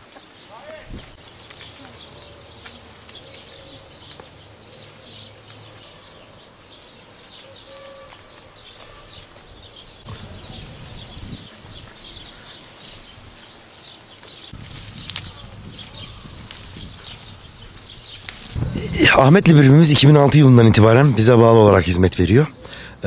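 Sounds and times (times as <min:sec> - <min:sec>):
small birds chirping: 0:00.0 - 0:23.0
low rumble: 0:14.6 - 0:20.0.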